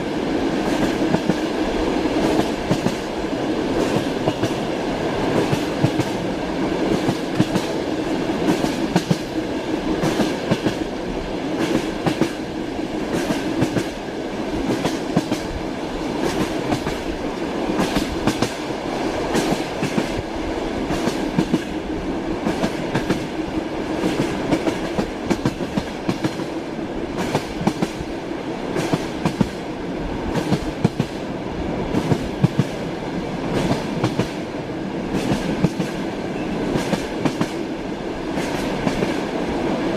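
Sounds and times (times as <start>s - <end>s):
train wheels clattering on rails: 0.0s - 29.7s, 30.3s - 39.9s.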